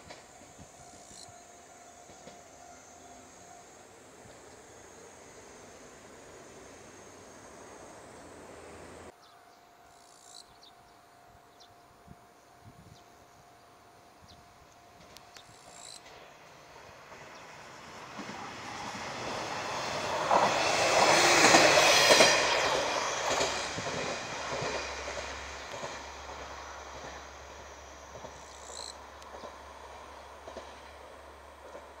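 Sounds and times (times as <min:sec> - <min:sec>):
train passing with wheel clatter: 0:00.0 - 0:32.0.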